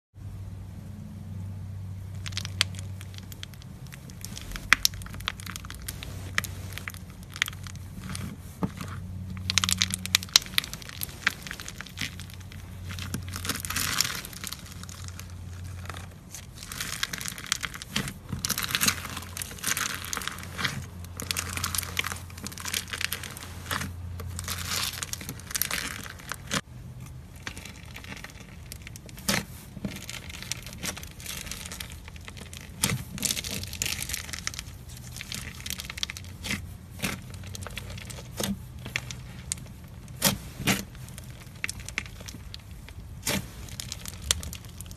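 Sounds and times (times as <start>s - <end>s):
steady low hum: 0.2s - 44.9s
slime crackling and popping: 2.0s - 44.9s.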